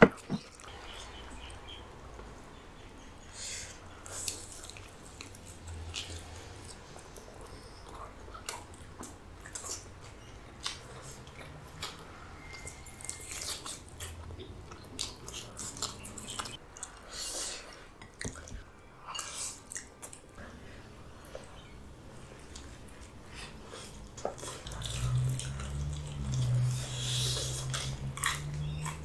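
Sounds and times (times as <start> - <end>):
person chewing food: 4.0 - 29.0
food crunching: 23.7 - 29.0.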